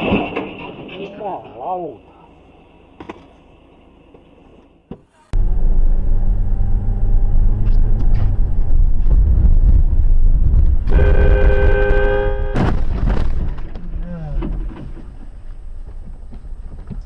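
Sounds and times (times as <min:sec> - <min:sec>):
vehicle rumble: 0:02.0 - 0:17.0
vehicle horn held: 0:10.9 - 0:12.7.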